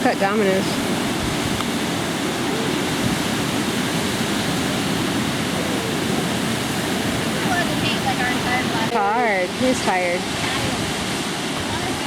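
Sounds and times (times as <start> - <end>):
ocean surf: 0.0 - 12.0
wind: 0.0 - 12.0.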